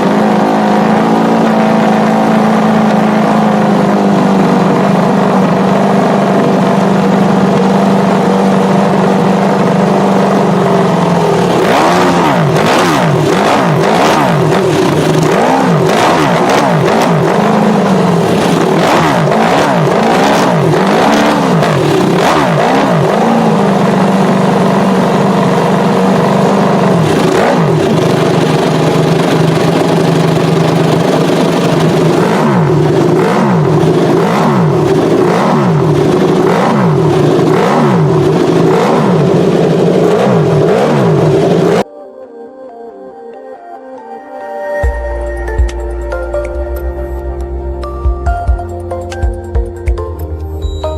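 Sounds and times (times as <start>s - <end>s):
motorcycle engine idling: 0.0s - 41.8s
quick throttle blips: 0.0s - 41.8s.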